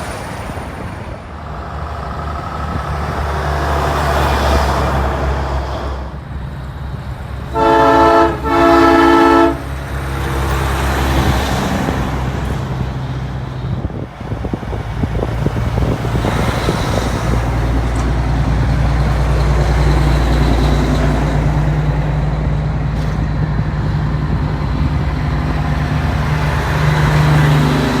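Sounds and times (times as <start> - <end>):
diesel engines rumbling: 0.0 - 28.0
truck air horn blasts: 7.5 - 9.8.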